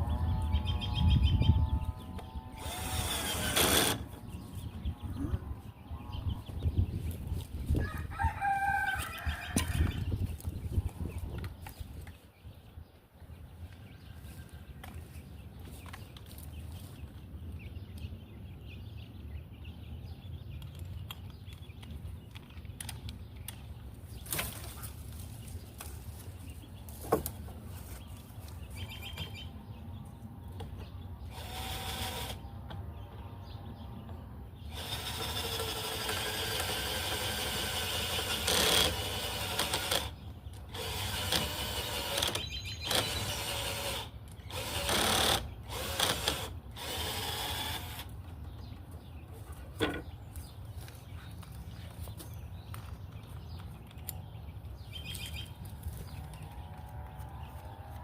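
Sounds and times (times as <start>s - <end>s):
power drill running: 2.6s - 4.0s, 31.3s - 32.4s, 34.7s - 40.1s, 40.7s - 48.1s.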